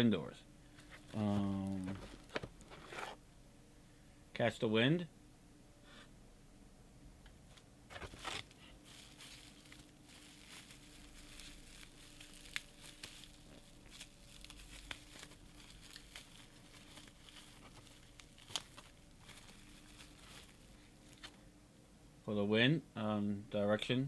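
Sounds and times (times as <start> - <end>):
packaging rustling and crinkling: 0.7 - 3.2, 7.9 - 21.5.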